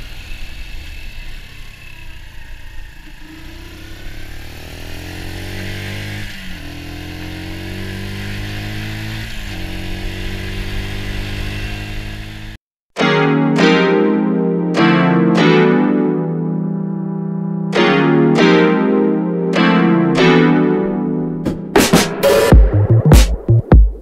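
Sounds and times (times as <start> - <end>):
motorcycle engine accelerating: 0.0 - 12.6.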